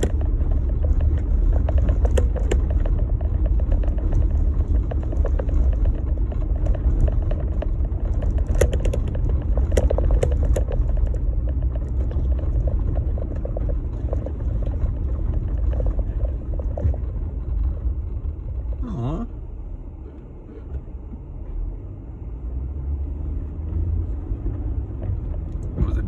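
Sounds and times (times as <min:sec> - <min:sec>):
sharp clicks and knocks: 0:00.0 - 0:18.8
vehicle engine and tyres rumbling: 0:00.0 - 0:26.0.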